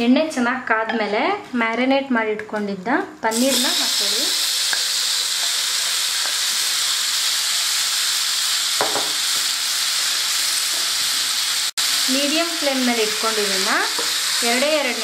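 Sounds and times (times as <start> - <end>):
cheese cubes sizzling in hot oil: 3.3 - 15.0.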